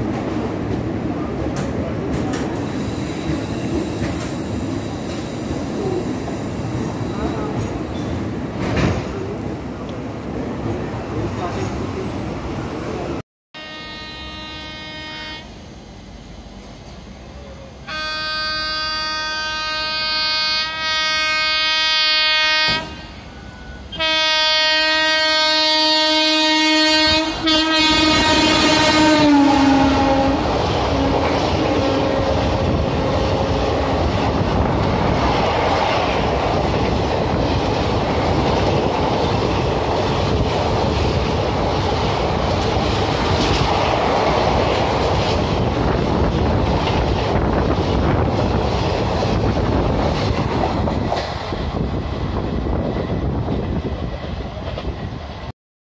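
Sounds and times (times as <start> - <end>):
train horn blasts: 13.5 - 15.6, 17.8 - 33.9.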